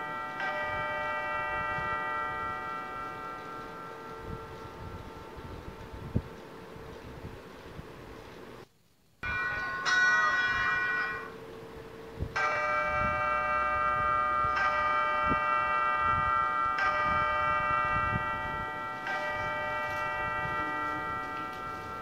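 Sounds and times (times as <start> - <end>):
bell chimes ringing: 9.2 - 11.4, 12.4 - 22.0.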